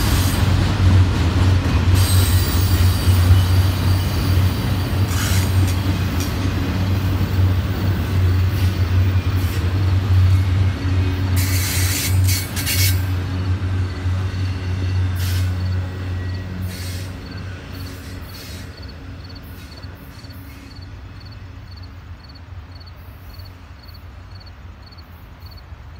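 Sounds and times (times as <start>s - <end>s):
train cars rumbling past: 0.0s - 25.9s
insect chirping: 17.2s - 25.6s.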